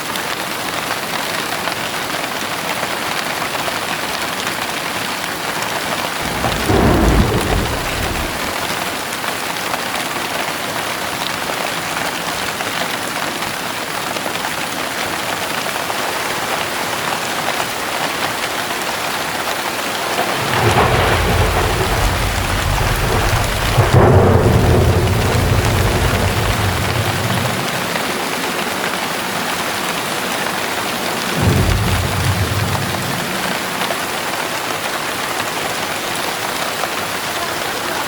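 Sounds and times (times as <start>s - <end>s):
heavy rain falling: 0.0s - 38.0s
thunder rumbling: 6.0s - 9.3s, 19.9s - 34.7s.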